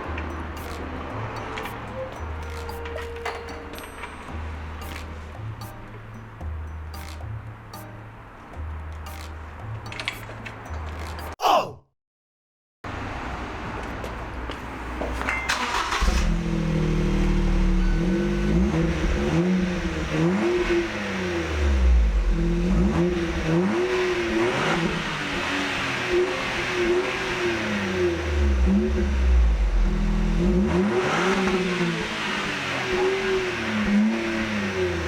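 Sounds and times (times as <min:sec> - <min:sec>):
car engine revving: 0:15.5 - 0:35.0.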